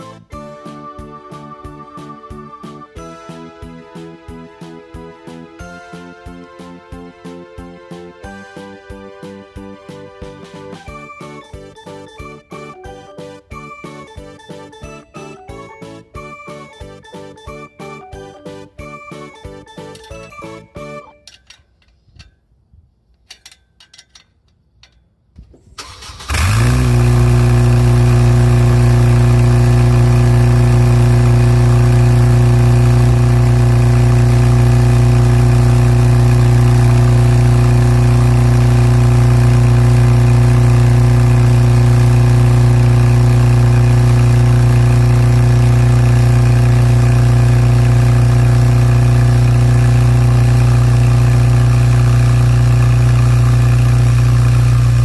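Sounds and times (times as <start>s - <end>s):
car engine starting and idling: 25.7s - 55.0s.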